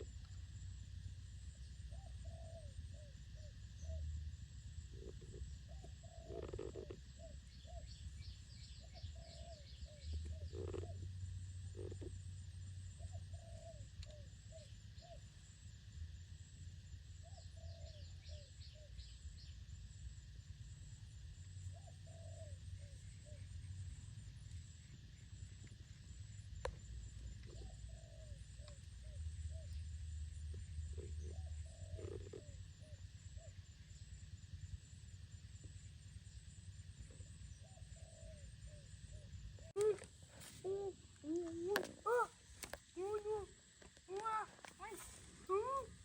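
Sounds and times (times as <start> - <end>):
dove cooing: 1.9 - 4.0, 4.9 - 7.9, 8.9 - 11.1, 13.0 - 15.2, 27.2 - 33.5, 37.1 - 46.0
low steady rumble: 7.1 - 40.3
click: 14.0 - 14.2.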